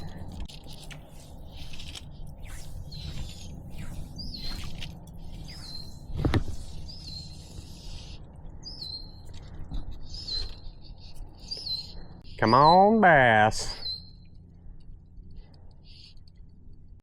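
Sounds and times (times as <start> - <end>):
songbird calling: 1.1 - 14.4, 15.7 - 16.3.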